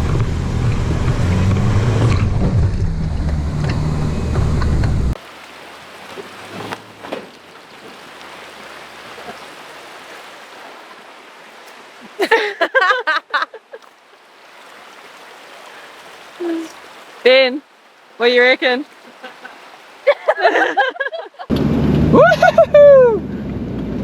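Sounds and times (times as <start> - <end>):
river flowing: 5.1 - 22.3.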